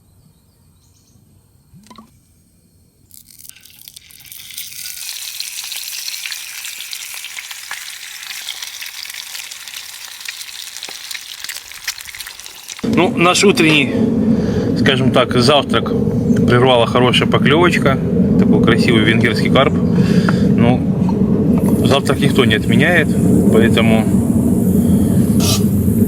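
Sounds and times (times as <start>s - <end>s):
food sizzling in a frying pan: 3.2s - 12.8s.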